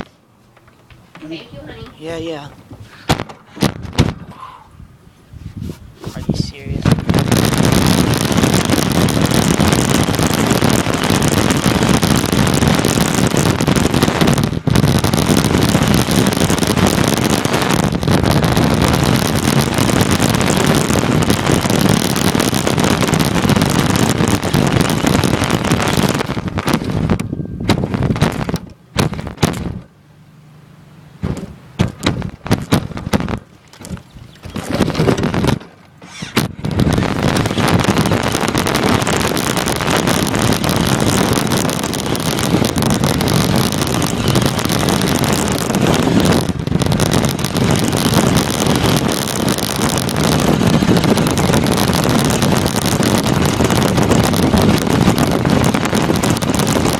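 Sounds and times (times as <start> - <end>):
wind on microphone: 1.2 - 29.9, 31.2 - 56.9
sharp knocks and bumps: 31.2 - 36.8
toy car chassis rumbling and rattling: 33.7 - 56.9.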